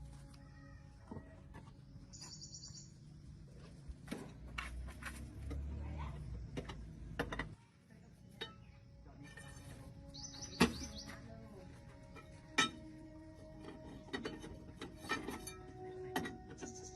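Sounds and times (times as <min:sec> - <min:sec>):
bird chirping trill: 0:02.0 - 0:03.2, 0:10.0 - 0:11.3, 0:16.5 - 0:16.9.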